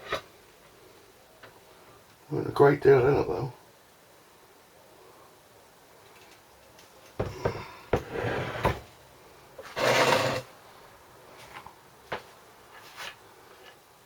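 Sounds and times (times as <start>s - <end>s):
knocks on workbench: 7.2s - 8.8s
metal parts scraping: 9.6s - 10.5s.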